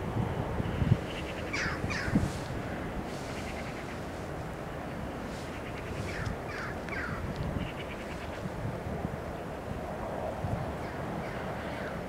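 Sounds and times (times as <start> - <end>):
wind rumble on microphone: 0.0 - 12.0
birds harsh falling calls: 0.8 - 2.5, 5.4 - 8.4.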